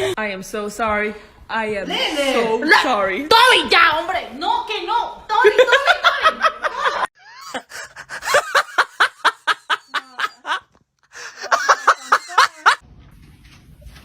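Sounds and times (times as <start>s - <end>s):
person laughing hard: 6.9s - 10.6s, 11.2s - 12.8s.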